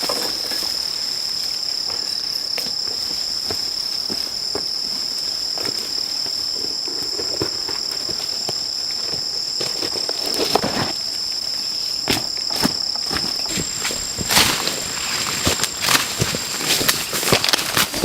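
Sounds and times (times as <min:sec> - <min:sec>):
rainforest insects chorus: 0:00.0 - 0:18.0
handling knocks and rustles: 0:12.0 - 0:18.0.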